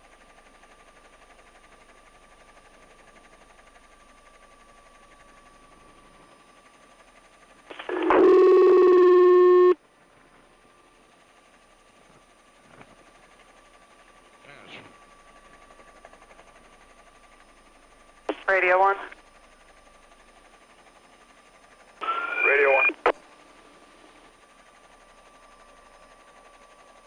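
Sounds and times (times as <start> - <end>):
thin steady whine: 7.7 - 9.8, 18.3 - 19.2, 22.0 - 23.2
faint radio hiss: 18.3 - 19.2, 22.0 - 23.1.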